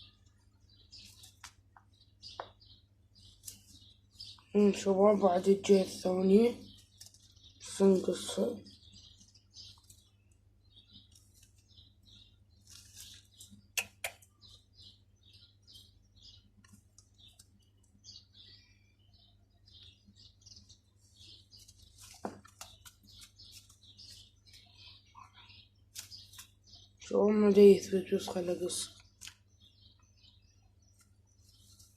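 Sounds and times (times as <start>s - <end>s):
small birds chirping: 0.0s - 31.9s
scissors clipping feathers: 13.3s - 14.3s.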